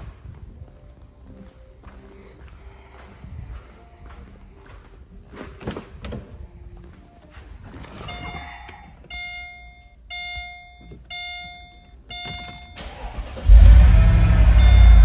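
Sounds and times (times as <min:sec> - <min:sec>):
dashboard warning chime: 0:08.0 - 0:08.5, 0:09.1 - 0:13.7, 0:14.3 - 0:15.0
car engine starting and running: 0:12.8 - 0:15.0.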